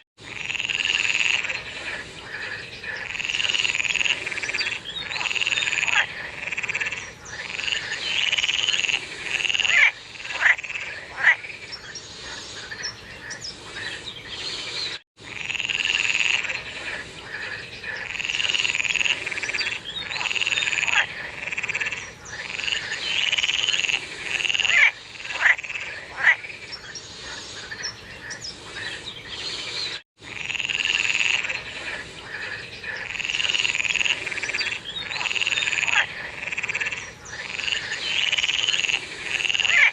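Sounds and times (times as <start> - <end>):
chorus of frogs calling: 0.2 - 39.9
sharp single frog croaks: 33.0 - 39.9.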